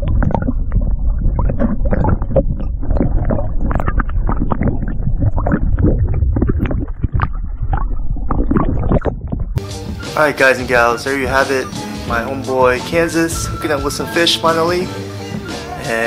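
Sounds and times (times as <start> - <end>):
wind rumbling on microphone: 0.0 - 9.6.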